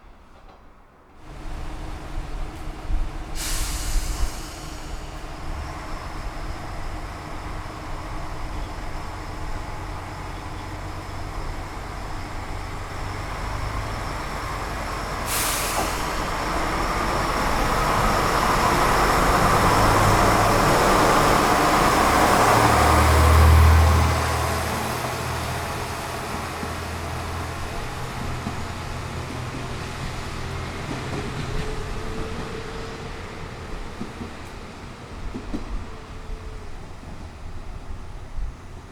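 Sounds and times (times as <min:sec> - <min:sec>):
diesel railcar engine: 0:00.0 - 0:38.9
air brakes hissing: 0:02.5 - 0:05.7, 0:14.7 - 0:20.4.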